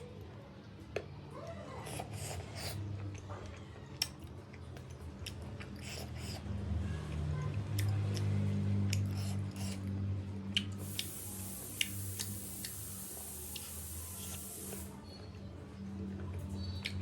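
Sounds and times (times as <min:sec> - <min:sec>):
person chewing food: 0:01.8 - 0:13.8
thin high hiss: 0:10.8 - 0:14.9.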